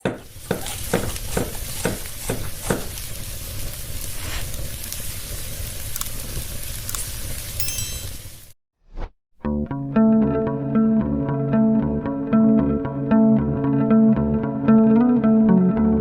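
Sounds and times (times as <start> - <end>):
food sizzling in hot oil: 0.2 - 8.6
spoon striking pan: 7.6 - 8.3.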